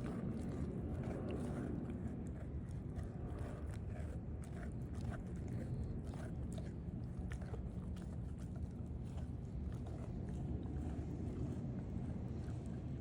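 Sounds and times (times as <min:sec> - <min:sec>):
puppy chewing meat: 0:00.0 - 0:13.0.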